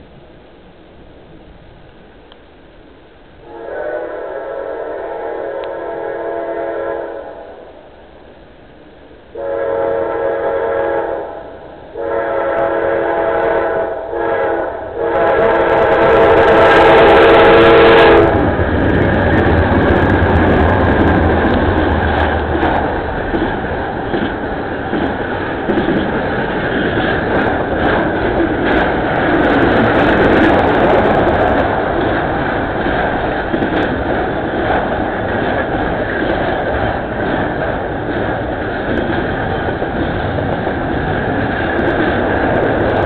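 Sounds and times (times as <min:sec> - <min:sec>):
locomotive air horn blasts: 0:03.4 - 0:07.7, 0:09.3 - 0:18.4
diesel engines rumbling: 0:13.2 - 0:43.0
train wheels clattering on rails: 0:15.0 - 0:43.0.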